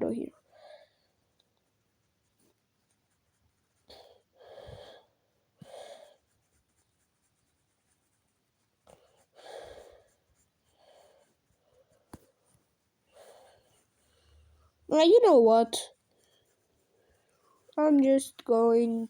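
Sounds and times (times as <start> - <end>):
person breathing: 0.4 - 1.2, 3.9 - 6.3, 8.9 - 12.4, 13.1 - 14.8.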